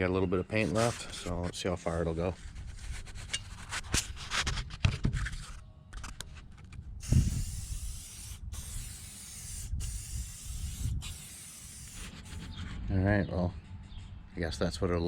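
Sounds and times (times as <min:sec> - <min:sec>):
spray-paint can hissing: 0:07.0 - 0:12.4.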